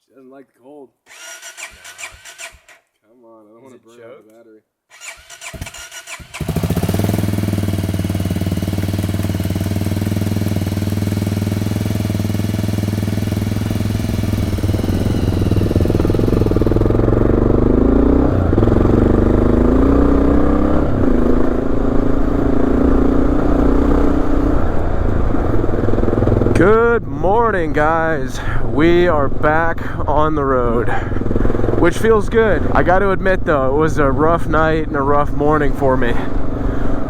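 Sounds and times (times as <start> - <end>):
motorcycle starter cranking: 1.1 - 2.8, 4.9 - 8.1
motorcycle engine idling: 5.4 - 32.9.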